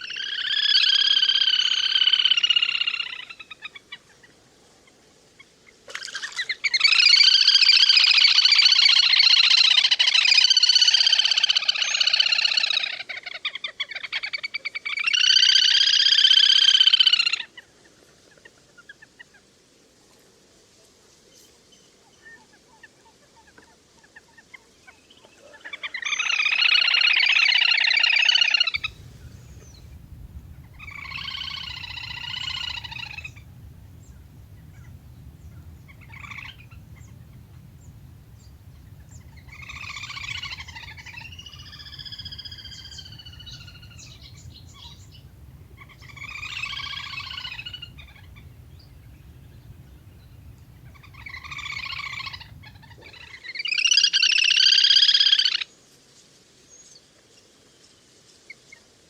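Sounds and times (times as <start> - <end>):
low steady hum: 28.8 - 53.2
ducks whistling calls: 28.8 - 53.3.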